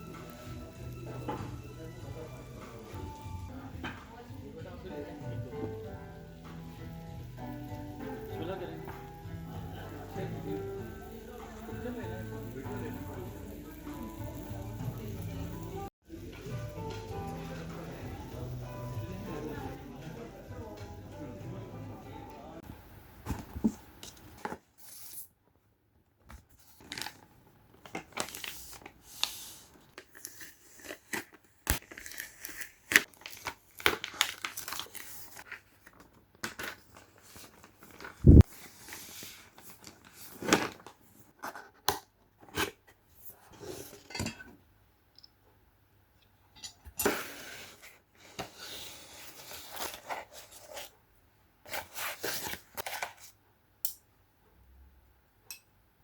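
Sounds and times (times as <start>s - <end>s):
wrapping tearing and crumpling: 26.6s - 41.0s.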